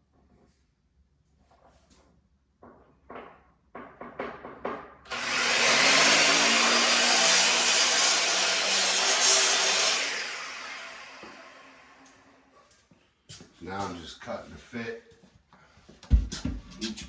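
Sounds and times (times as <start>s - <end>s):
light knocks and clatters: 1.5s - 5.0s
electric power tool running: 5.1s - 12.4s.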